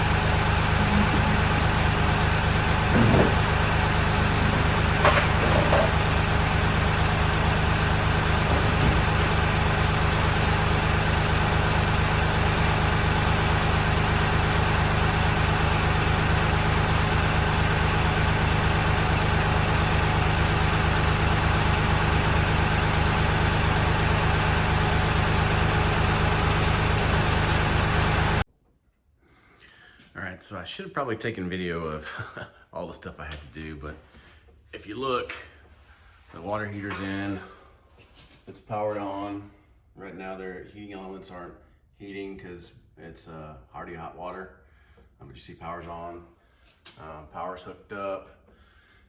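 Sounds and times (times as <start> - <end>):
motor running steadily: 0.0 - 28.4
faint knocks: 2.9 - 3.6.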